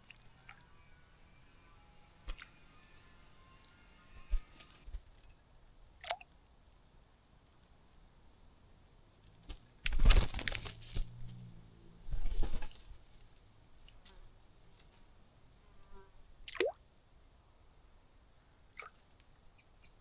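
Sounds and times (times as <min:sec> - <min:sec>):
bird splashing and fluttering: 0:02.2 - 0:03.0, 0:04.2 - 0:05.4, 0:09.4 - 0:11.5, 0:12.1 - 0:15.0.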